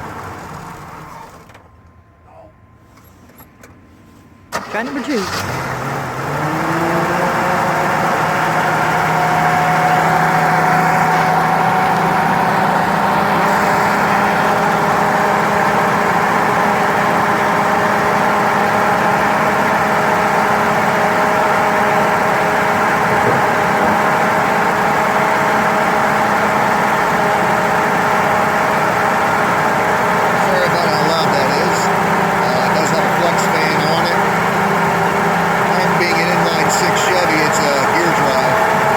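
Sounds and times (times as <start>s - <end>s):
car engine fast idle: 0.0s - 1.7s, 4.5s - 38.9s.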